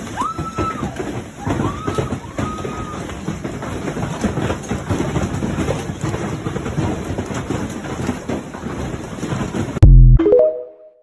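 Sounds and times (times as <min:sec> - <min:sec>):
hailstones hammering on hard surfaces: 0:00.0 - 0:09.8
short high-pitched tones: 0:09.8 - 0:11.0.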